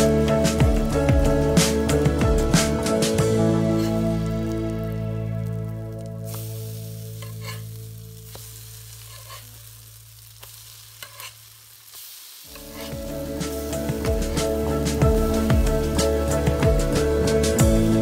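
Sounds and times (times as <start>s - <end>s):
background music: 0.0s - 9.4s, 12.5s - 18.0s
patties sizzling in oil: 0.0s - 18.0s
metal spatula scraping: 3.7s - 4.1s, 7.2s - 9.7s, 10.4s - 11.6s, 12.5s - 14.9s.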